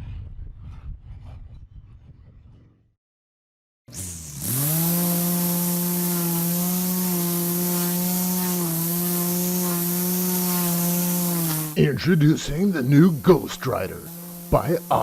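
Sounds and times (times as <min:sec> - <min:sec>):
engine running at high speed: 0:03.9 - 0:15.0
strong hiss: 0:07.5 - 0:15.0.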